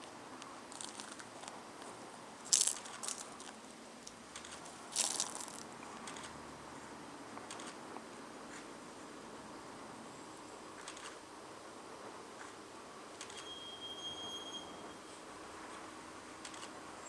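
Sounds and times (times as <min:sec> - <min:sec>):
faint background hiss: 0:00.0 - 0:17.0
sharp clicks and rattles: 0:02.5 - 0:06.4, 0:07.4 - 0:07.8.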